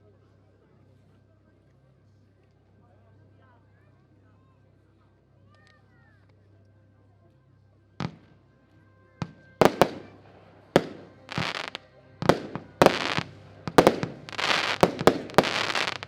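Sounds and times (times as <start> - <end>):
firework battery bangs: 9.2 - 10.2, 10.8 - 16.0.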